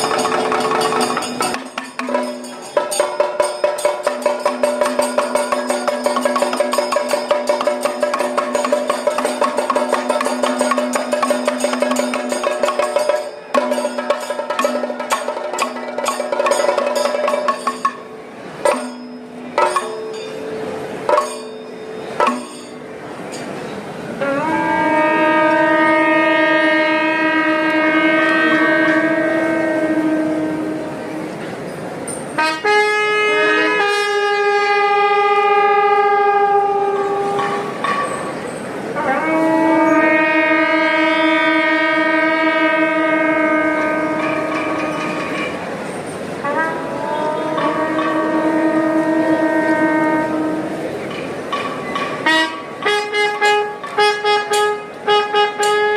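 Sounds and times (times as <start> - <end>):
drum strokes: 0.0 - 31.3, 41.7 - 55.9
held wind instrument notes: 0.0 - 55.9
long steady horn blast: 24.1 - 31.4, 32.4 - 37.8, 39.0 - 45.6, 46.4 - 51.2, 52.2 - 55.9.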